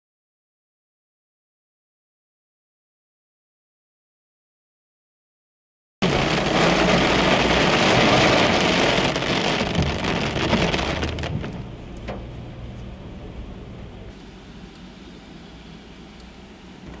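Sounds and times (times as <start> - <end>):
sharp raindrop hits: 6.0 - 11.7
heavy rain drumming on car roof: 6.0 - 12.2.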